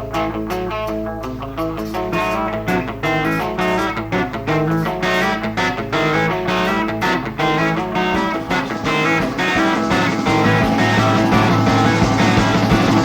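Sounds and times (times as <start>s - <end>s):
bass guitar: 0.0s - 13.0s
quick electric guitar notes: 0.0s - 13.0s
steady drum beat: 7.8s - 13.0s.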